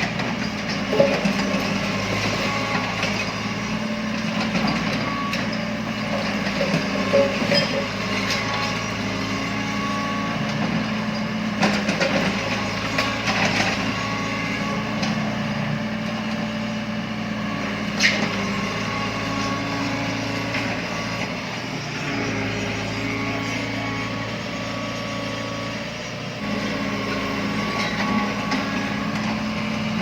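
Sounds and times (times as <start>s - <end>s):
diesel engine running: 0.0s - 30.0s
sharp knocks and clanks: 0.9s - 1.5s.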